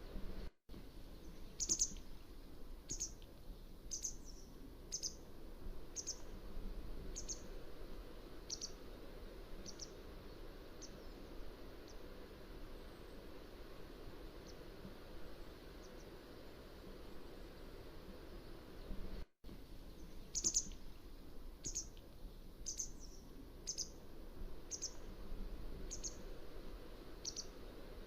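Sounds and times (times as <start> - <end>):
low background hiss: 0.0 - 28.0
bird chirping: 1.2 - 2.1, 2.9 - 3.2, 3.9 - 5.2, 6.0 - 6.3, 7.1 - 7.5, 8.5 - 8.8, 9.6 - 10.0, 19.9 - 20.8, 21.6 - 22.0, 22.6 - 24.0, 24.7 - 25.1, 25.8 - 26.3, 27.2 - 27.6.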